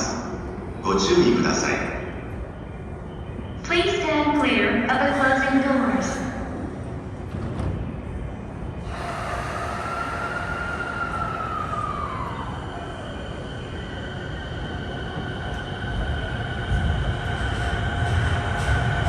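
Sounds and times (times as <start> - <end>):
low rumble: 6.9 - 19.0
electric train motor whine: 8.8 - 19.0.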